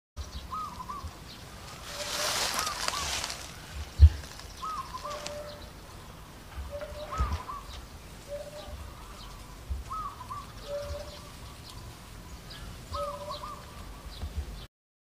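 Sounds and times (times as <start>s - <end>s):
soft low thumps: 3.7s - 4.4s, 14.2s - 14.7s.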